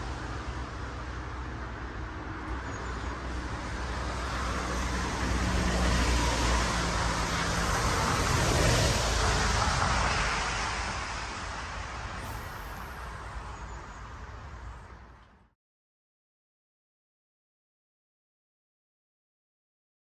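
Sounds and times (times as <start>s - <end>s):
vehicle passing on road: 0.0s - 15.3s.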